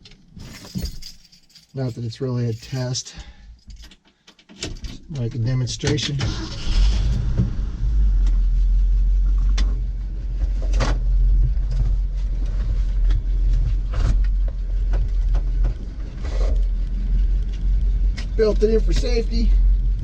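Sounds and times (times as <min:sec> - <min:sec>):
truck engine rumbling: 0:05.4 - 0:20.0.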